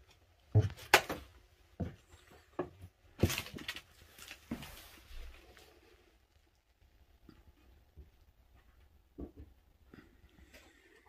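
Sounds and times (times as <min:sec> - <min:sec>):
footsteps on wooden floor: 0:00.5 - 0:03.6
paper debris crackling underfoot: 0:03.2 - 0:06.4.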